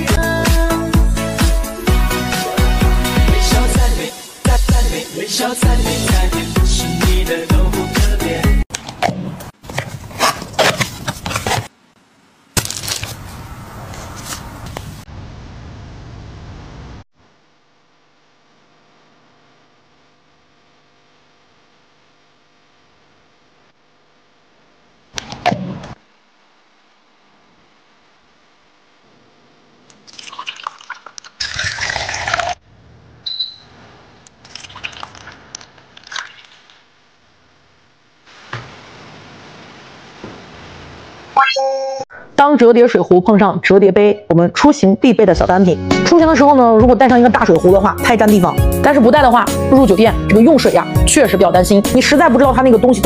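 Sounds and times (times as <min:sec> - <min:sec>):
pop song: 0:00.0 - 0:08.6, 0:47.6 - 0:53.0
short high beep: 0:33.2 - 0:33.7, 0:41.4 - 0:42.1
steady hiss: 0:38.2 - 0:41.2.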